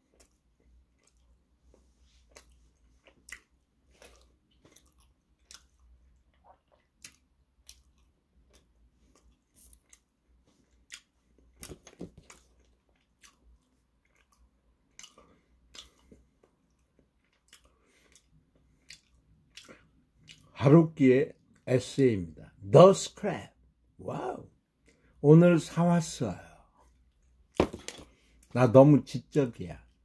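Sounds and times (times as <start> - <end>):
wet mouth chewing clicks: 2.3 - 10.1, 15.0 - 20.5.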